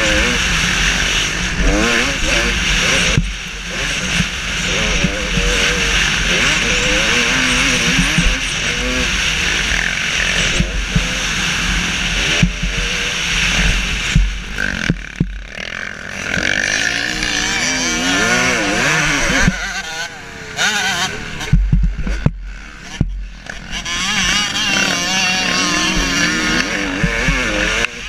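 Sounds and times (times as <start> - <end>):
motocross bike engine revving: 0.0 - 28.0
wind rush: 7.8 - 15.6.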